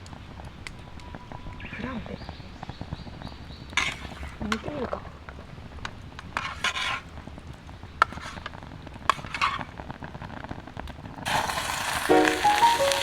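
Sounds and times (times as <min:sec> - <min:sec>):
faint sizzle: 0:07.0 - 0:13.0
background music: 0:12.1 - 0:13.0.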